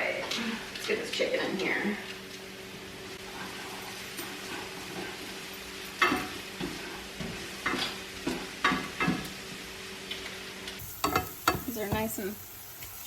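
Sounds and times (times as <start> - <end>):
chicken sizzling in hot oil: 3.1 - 13.0.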